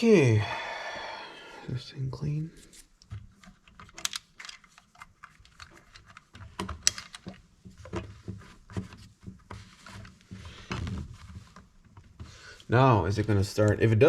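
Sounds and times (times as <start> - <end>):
small parts clicking and tapping: 3.0 - 8.0.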